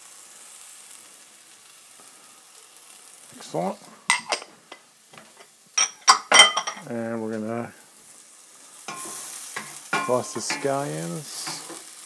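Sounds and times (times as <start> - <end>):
pepper sizzling in oil: 0.0 - 12.0
utensil clinking against pan: 4.1 - 6.8, 8.9 - 11.8.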